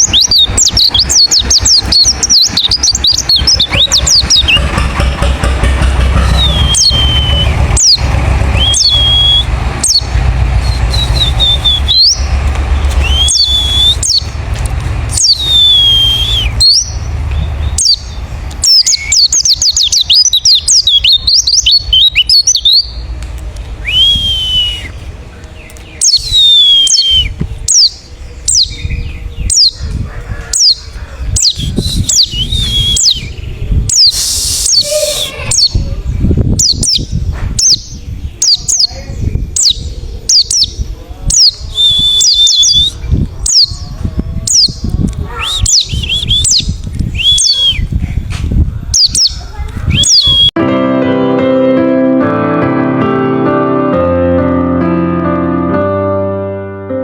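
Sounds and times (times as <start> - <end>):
bird whistles and chirps: 0.0 - 4.7, 6.2 - 8.0, 8.6 - 14.3, 15.1 - 17.0, 17.7 - 23.0, 23.8 - 25.0, 26.0 - 29.8, 31.4 - 35.8, 41.4 - 43.8, 44.5 - 48.0, 49.0 - 50.6
low rumble: 0.0 - 38.4.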